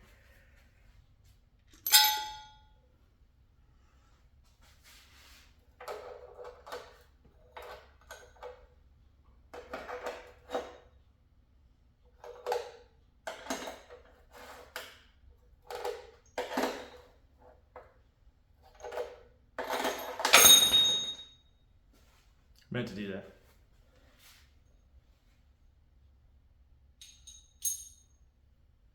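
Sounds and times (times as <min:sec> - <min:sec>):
loud ringing metal clang: 0:01.8 - 0:02.6, 0:20.4 - 0:21.3
metal engine parts clinking: 0:01.8 - 0:02.7, 0:19.6 - 0:21.3, 0:27.0 - 0:28.2.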